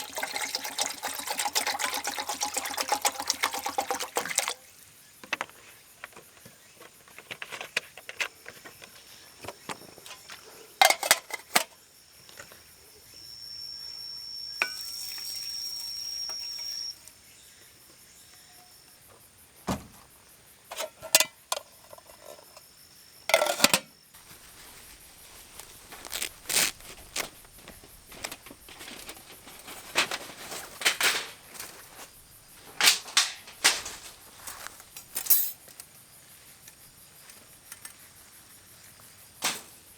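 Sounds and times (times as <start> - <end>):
high insect call: 0.0 - 39.9
steady hiss: 24.2 - 39.9.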